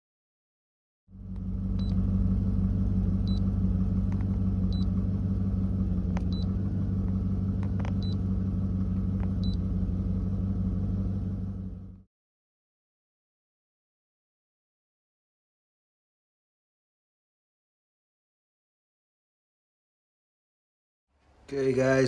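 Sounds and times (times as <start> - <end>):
car engine idling: 1.1 - 12.1.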